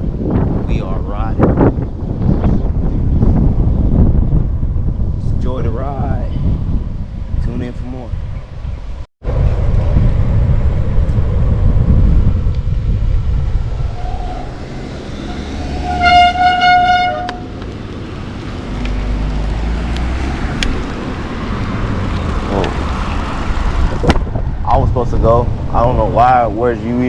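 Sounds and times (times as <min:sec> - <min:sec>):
wind rumbling on microphone: 0:00.0 - 0:27.0
vehicle horn honking: 0:14.7 - 0:17.6.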